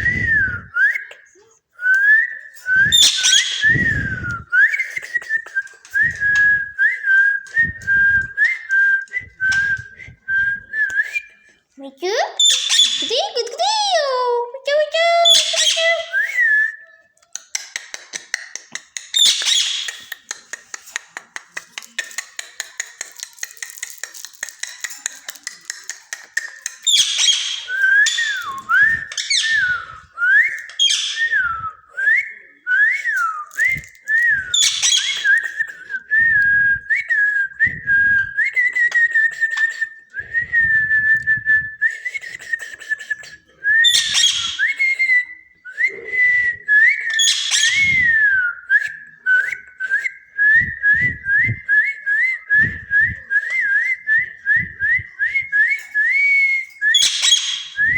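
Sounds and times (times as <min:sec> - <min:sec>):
parrot whistling: 0:02.0 - 0:04.8, 0:12.4 - 0:13.6, 0:15.2 - 0:17.0, 0:19.2 - 0:20.2, 0:26.9 - 0:31.6, 0:33.2 - 0:35.4, 0:43.7 - 0:45.4, 0:46.2 - 0:49.5, 0:54.8 - 0:57.9
parrot harsh calls: 0:12.4 - 0:13.1, 0:43.9 - 0:44.6, 0:57.0 - 0:57.8
parrot clicking chatter: 0:17.4 - 0:28.5.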